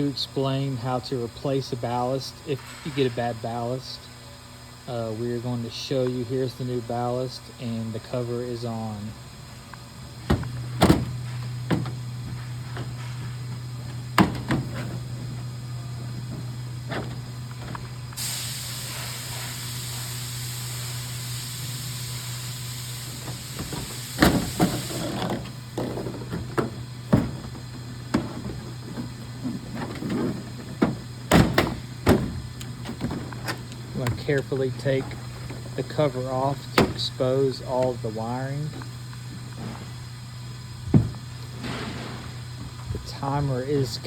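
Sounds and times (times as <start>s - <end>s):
steady low hum: 0.0s - 44.0s
parts clicking and knocking: 9.2s - 18.2s, 23.0s - 44.0s
hiss: 17.0s - 25.7s.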